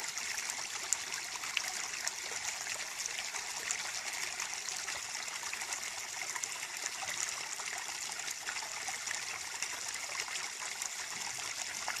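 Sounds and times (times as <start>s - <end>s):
stream trickling over stones: 0.0s - 12.0s.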